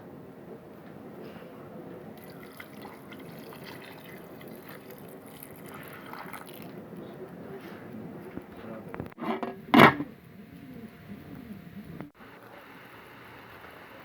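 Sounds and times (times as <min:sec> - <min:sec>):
small liquid drips: 0:02.2 - 0:06.8.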